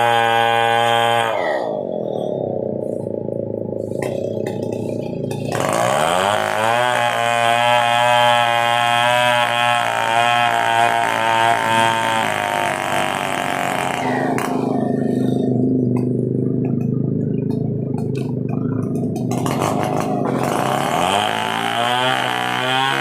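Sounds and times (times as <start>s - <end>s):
chainsaw cutting wood: 0.0s - 2.4s, 3.9s - 16.1s, 19.2s - 23.0s.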